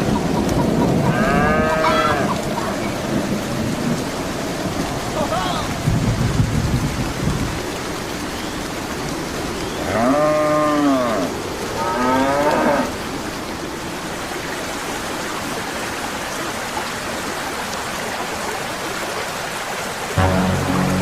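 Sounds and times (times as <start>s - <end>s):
rain-like hiss: 0.0s - 21.0s
cow mooing: 1.1s - 2.4s, 9.8s - 12.9s
low steady hum: 20.2s - 21.0s.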